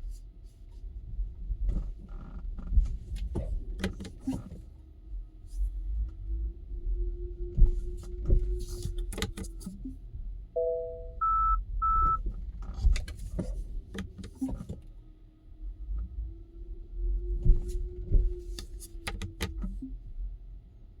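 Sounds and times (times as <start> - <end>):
high beeps: 10.6 - 12.2
two-note car chime: 10.6 - 12.2.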